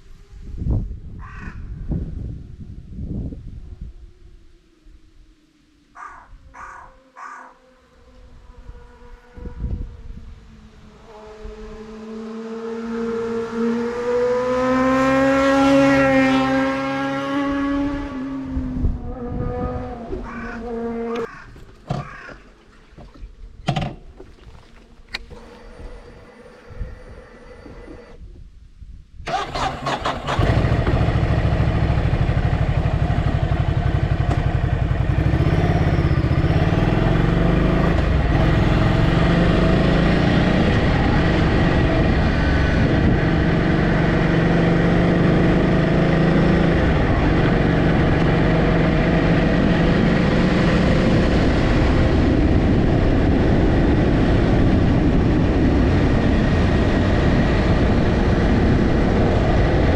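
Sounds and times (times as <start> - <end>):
engine running: 29.3 - 59.9.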